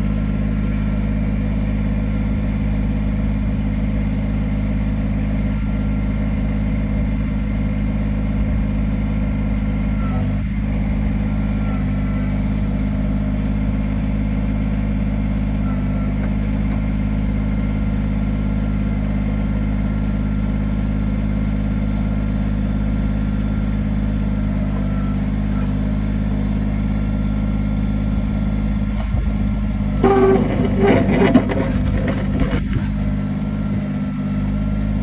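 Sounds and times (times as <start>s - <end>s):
diesel engine droning: 0.0s - 35.0s
loud uneven sound: 30.0s - 32.9s.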